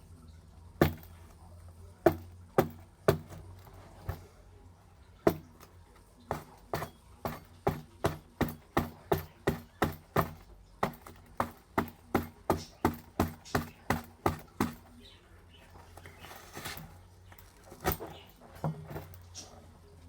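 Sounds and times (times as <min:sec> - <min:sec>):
sharp knocks: 0:00.8 - 0:01.3, 0:02.0 - 0:04.3, 0:05.2 - 0:15.0.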